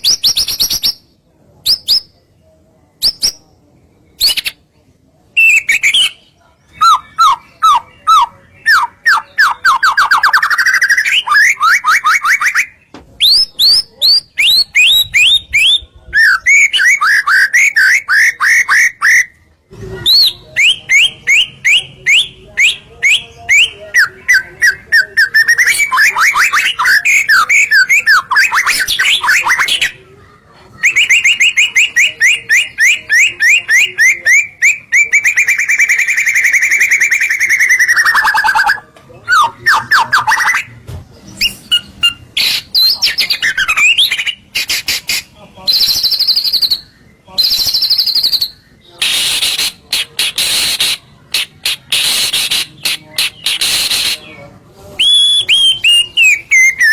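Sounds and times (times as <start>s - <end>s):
bird singing whistled trills: 5.4s - 19.3s, 30.8s - 40.7s, 45.7s - 54.4s, 55.0s - 56.9s.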